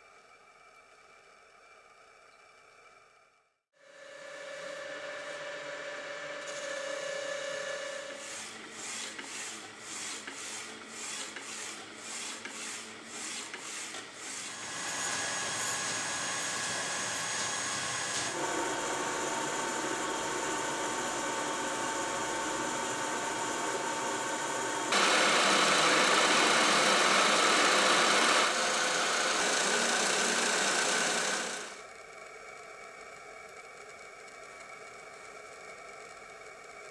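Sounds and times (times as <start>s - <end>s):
cnc machine cutting metal: 14.6s - 31.8s.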